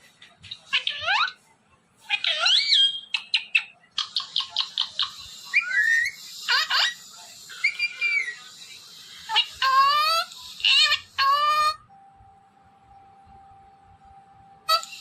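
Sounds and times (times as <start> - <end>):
parrot whistling: 4.1 - 8.6.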